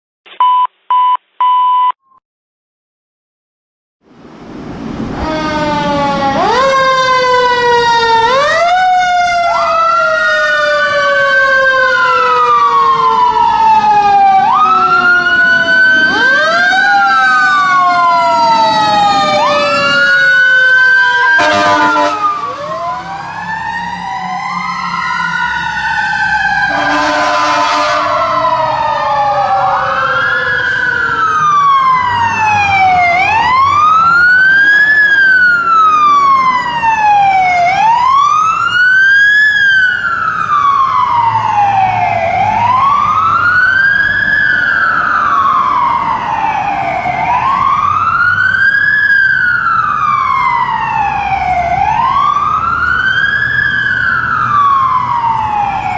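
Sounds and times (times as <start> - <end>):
fire sirens wailing: 4.5 - 55.9
air horn blast: 21.4 - 22.5, 26.7 - 28.2.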